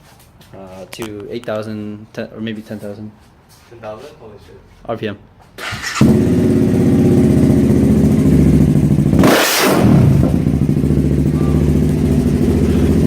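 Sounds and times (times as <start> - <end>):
motorcycle engine idling and revving: 5.6 - 13.0.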